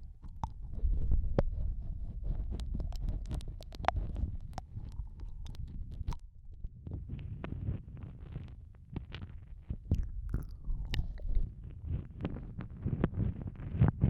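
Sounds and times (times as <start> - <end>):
wet mouth smacks and clicks: 0.0 - 6.3, 9.9 - 11.6.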